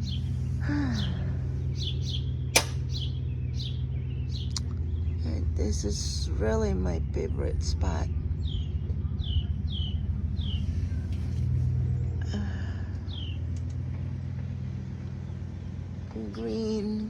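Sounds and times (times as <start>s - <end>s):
bird chirping: 0.0s - 6.0s, 6.7s - 11.2s, 13.0s - 13.7s
low motor rumble: 0.0s - 17.0s.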